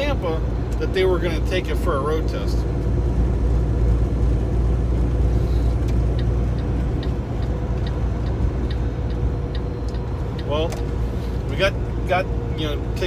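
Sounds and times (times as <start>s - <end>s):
truck engine and road rumble: 0.0s - 13.0s
light ticking: 5.8s - 11.0s.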